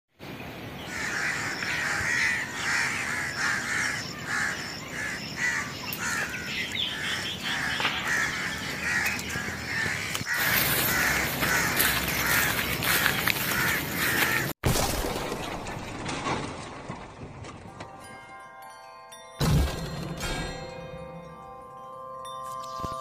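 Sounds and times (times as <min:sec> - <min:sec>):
bird harsh call: 0:00.8 - 0:14.5.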